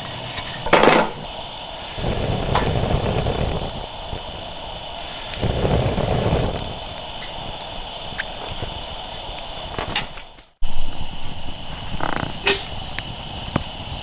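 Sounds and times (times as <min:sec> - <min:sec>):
high-pitched insect trill: 0:00.0 - 0:14.0
low rumbling noise: 0:01.2 - 0:09.9.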